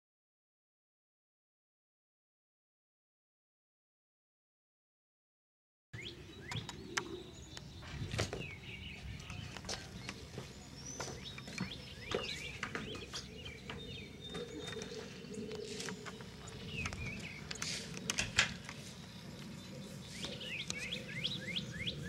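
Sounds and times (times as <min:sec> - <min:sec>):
small birds chirping: 0:06.0 - 0:22.0
sharp knocks and taps: 0:09.6 - 0:14.8.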